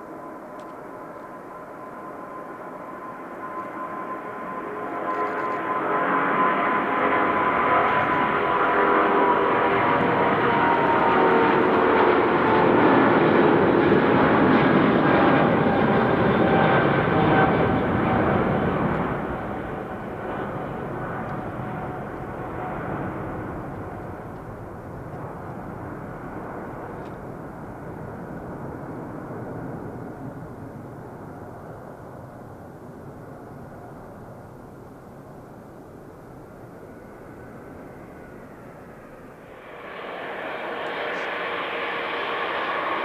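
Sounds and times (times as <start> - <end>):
jet engines passing: 0.0 - 43.0.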